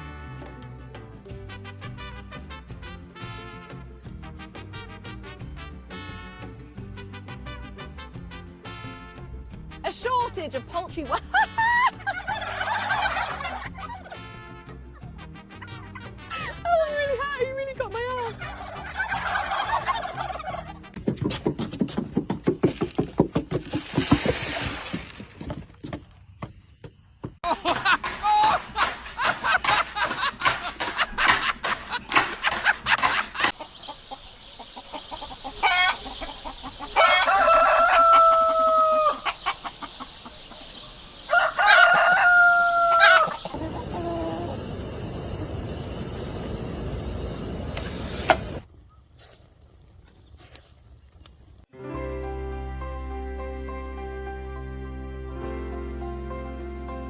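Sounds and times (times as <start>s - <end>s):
chickens clucking: 18.4s - 20.8s, 27.4s - 44.4s
rooster crowing: 36.8s - 39.4s, 41.2s - 43.6s.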